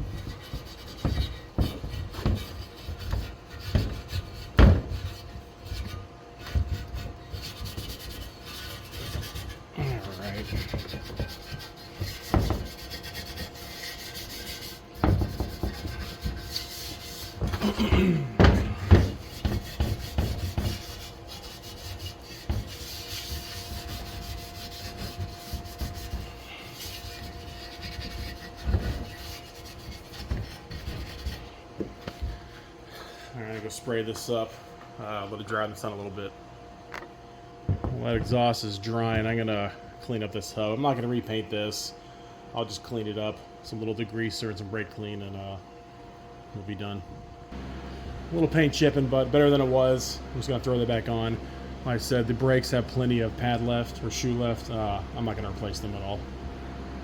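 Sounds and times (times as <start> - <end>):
hand scraping on a part: 0.0 - 34.3
knocks and clunks: 17.4 - 20.8.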